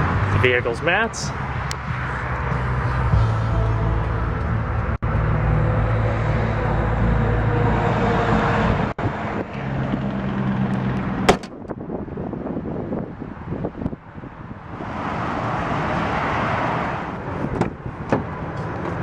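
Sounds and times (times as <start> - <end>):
sharp knock: 11.3 - 11.6.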